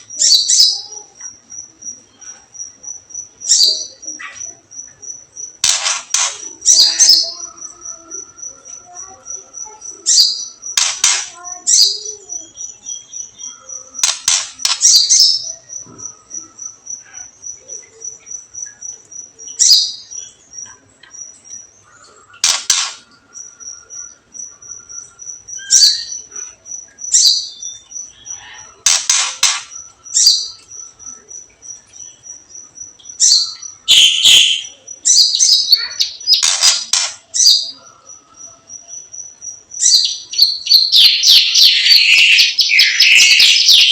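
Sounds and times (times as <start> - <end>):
songbirds chirping and whistling: 0.0 - 43.9
high ticking bird call: 18.6 - 37.8, 39.8 - 43.9.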